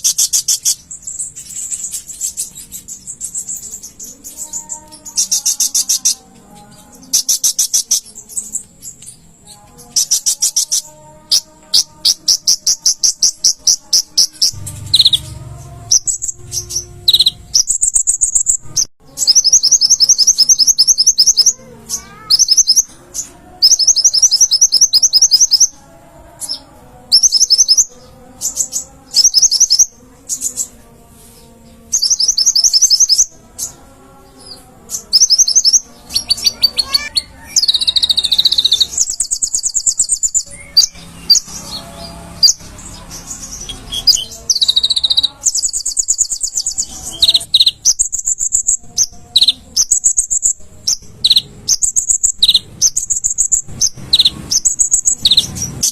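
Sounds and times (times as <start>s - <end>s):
bird singing high trills: 0.0s - 30.8s, 31.4s - 55.9s.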